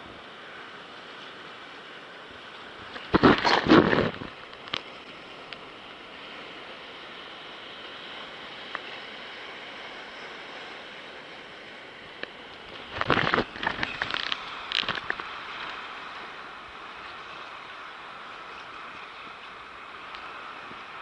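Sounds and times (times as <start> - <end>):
water lapping around kayak: 0.0 - 21.0
loud splash: 3.0 - 4.3.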